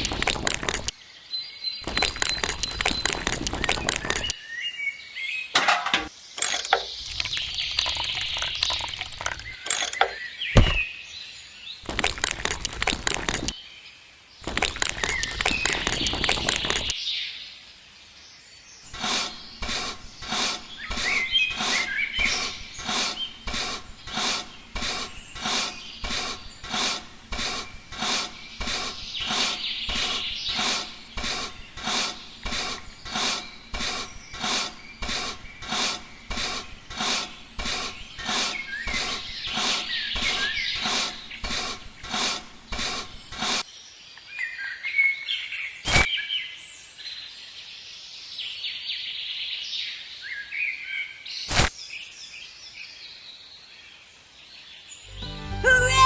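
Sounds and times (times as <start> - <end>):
birds chirping: 0.0 - 46.6
rhythmic rubbing strokes: 18.9 - 43.6.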